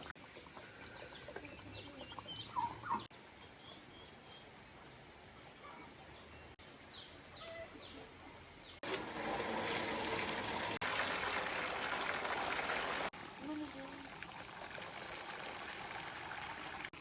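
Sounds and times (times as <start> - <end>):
rush of running water: 8.8 - 17.0.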